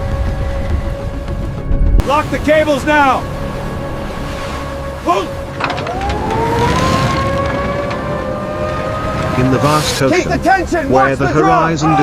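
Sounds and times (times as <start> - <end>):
low machinery rumble: 0.0 - 9.3
winch whining: 0.2 - 12.0.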